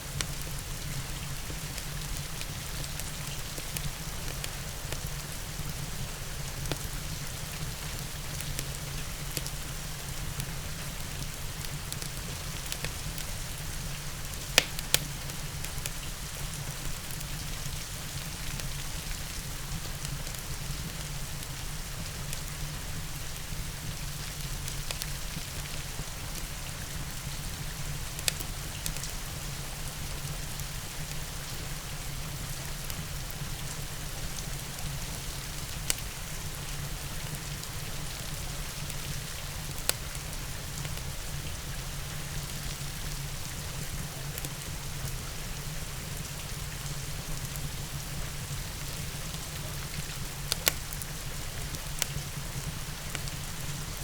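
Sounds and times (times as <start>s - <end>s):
steady rain: 0.0s - 54.0s
fire burning in fireplace: 0.1s - 54.0s
sharp fire crackles: 1.4s - 17.5s, 46.6s - 54.0s.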